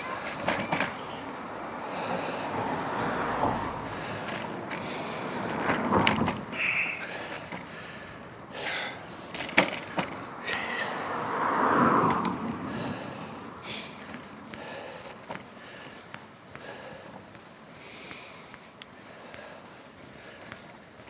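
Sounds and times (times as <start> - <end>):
bike knocks and rattles: 0.0 - 1.4, 3.9 - 8.2, 8.8 - 10.8, 13.9 - 17.5
bicycle riding rush: 0.0 - 21.0.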